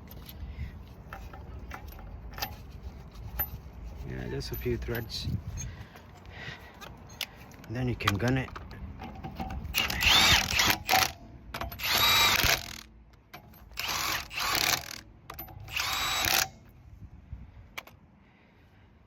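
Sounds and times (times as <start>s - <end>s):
impact wrench bursts: 9.7s - 12.9s, 13.5s - 16.6s.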